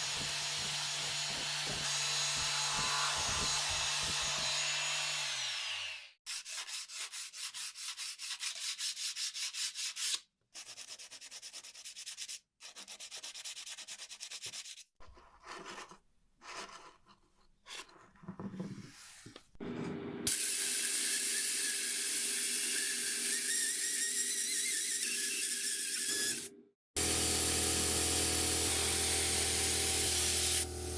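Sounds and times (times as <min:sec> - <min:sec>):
sandpaper rubbing: 0:06.3 - 0:14.9.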